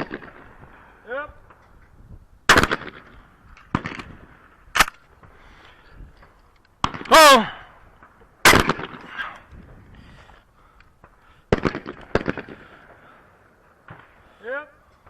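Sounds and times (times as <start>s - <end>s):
shotgun shots: 2.5s - 3.1s, 3.7s - 5.0s, 6.8s - 7.4s, 8.4s - 9.1s, 11.5s - 13.0s
man shouting: 7.1s - 7.6s.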